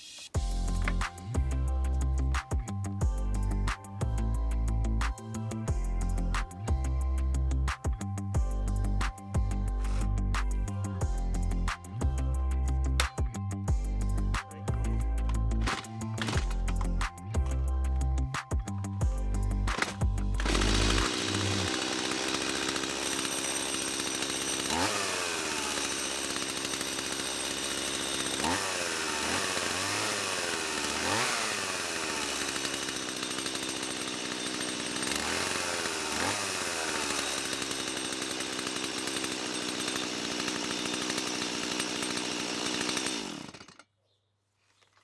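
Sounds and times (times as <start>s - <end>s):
chainsaw engine revving: 14.2s - 17.6s, 19.1s - 43.8s.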